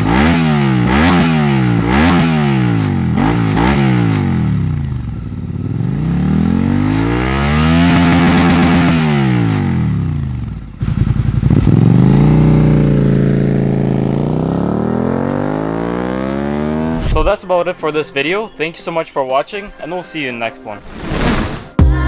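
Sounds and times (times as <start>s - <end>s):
motorcycle engine revving: 0.0s - 17.3s.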